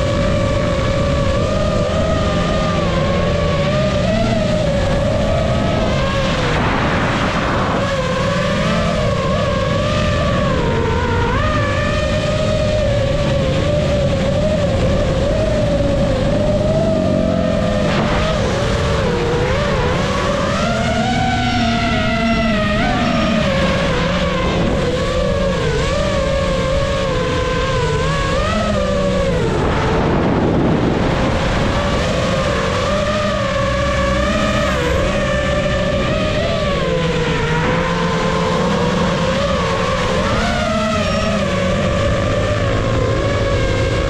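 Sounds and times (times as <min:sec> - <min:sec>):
drone propellers whining: 0:00.0 - 0:44.0
noisy rush: 0:00.0 - 0:44.0
motorcycle engine revving: 0:31.1 - 0:44.0
low rushing noise: 0:31.6 - 0:38.8.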